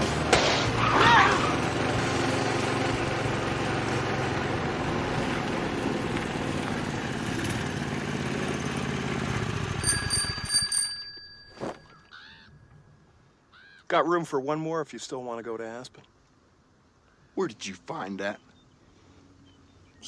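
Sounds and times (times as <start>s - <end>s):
small vehicle motor running: 0.1s - 11.0s.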